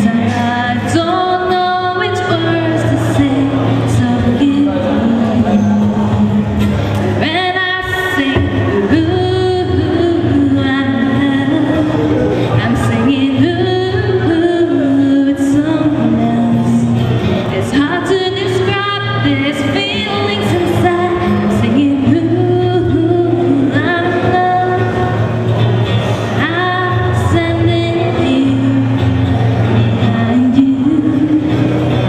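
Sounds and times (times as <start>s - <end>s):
live band playing pop: 0.0s - 32.0s
person singing: 0.0s - 32.0s.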